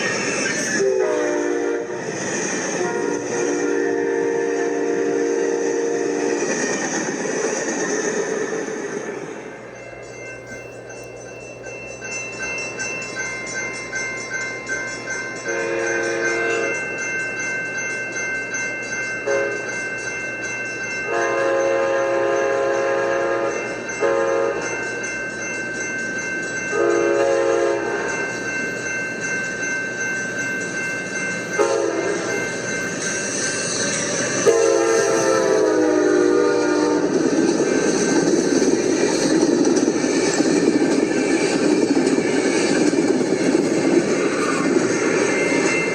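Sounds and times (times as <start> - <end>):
passing train rumble: 0.0 - 45.9
train horn blasts: 0.7 - 2.1, 2.7 - 6.6, 15.5 - 16.8, 19.3 - 19.7, 21.1 - 24.7, 26.7 - 28.2, 31.6 - 32.4, 34.4 - 37.2.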